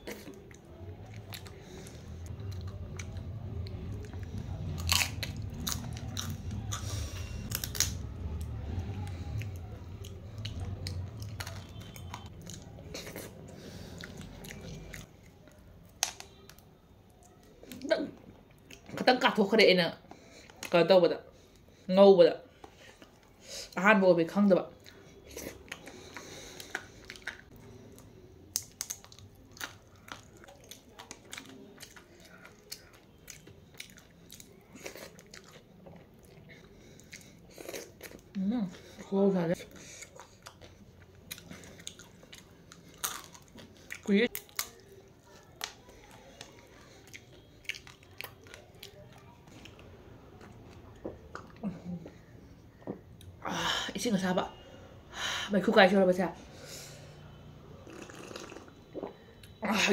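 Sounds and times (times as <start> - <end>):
person chewing crunchy food: 0.0 - 16.6, 24.8 - 38.4, 39.0 - 51.7.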